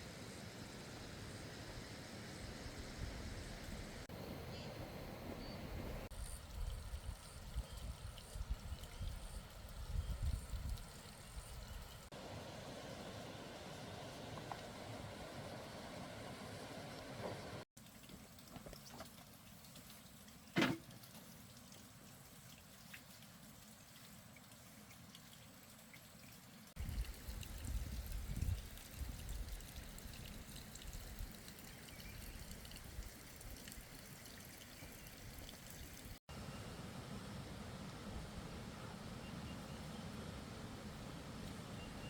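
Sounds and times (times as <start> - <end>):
water pouring and trickling: 6.0 - 36.4.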